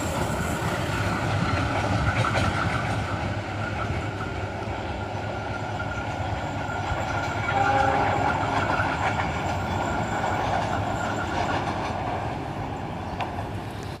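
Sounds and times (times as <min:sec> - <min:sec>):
train wheels clattering on rails: 0:00.0 - 0:14.0.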